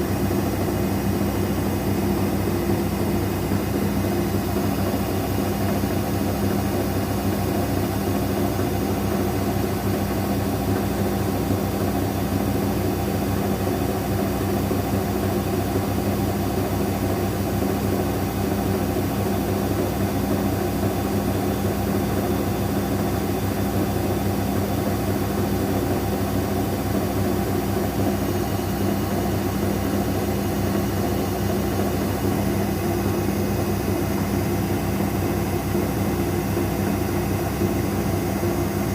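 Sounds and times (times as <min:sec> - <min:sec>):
washing machine spinning hum: 0:00.0 - 0:38.9.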